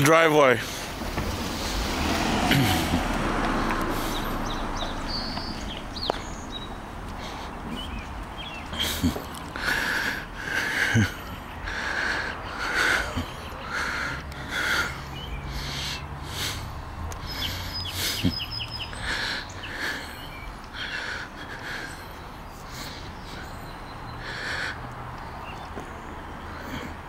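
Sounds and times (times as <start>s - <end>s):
harsh bird calls: 0.0s - 27.0s
high bird chirps: 4.0s - 6.8s, 17.3s - 21.1s.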